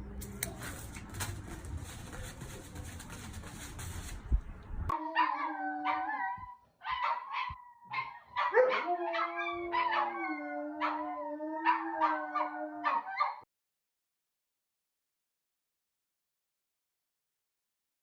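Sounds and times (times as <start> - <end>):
dog howling: 4.9 - 13.4.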